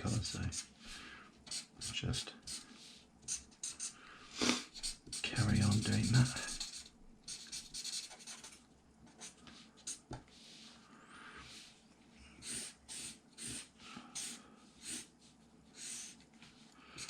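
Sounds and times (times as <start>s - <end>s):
marker pen scratching on paper: 2.4s - 4.0s, 4.7s - 10.7s, 12.4s - 17.0s.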